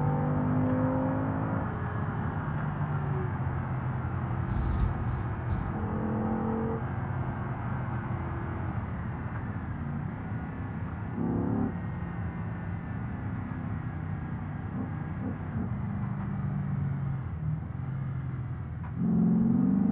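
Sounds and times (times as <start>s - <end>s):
car engine and road drone: 0.0s - 19.9s.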